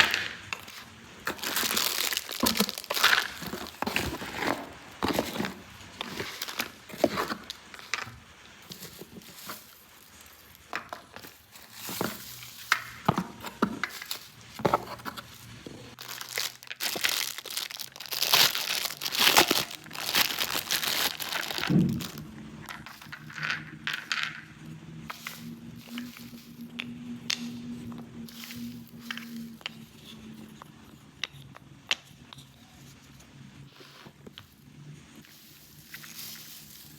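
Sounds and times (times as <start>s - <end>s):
plastic packaging crinkling and tearing: 0.0s - 13.0s, 15.0s - 23.2s.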